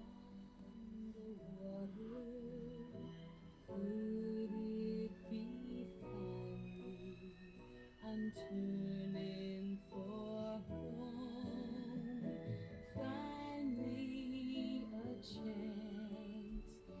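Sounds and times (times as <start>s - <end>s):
woman singing with vibrato: 0.0s - 17.0s.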